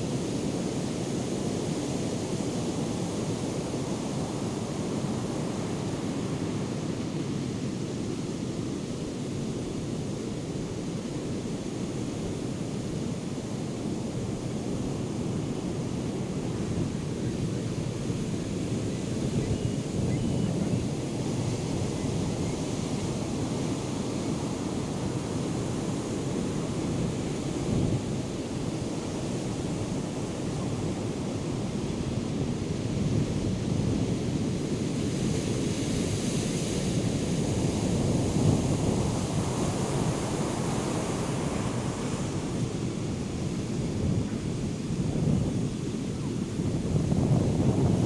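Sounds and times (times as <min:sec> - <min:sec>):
wind buffeting microphone: 0:37.4 - 0:48.0.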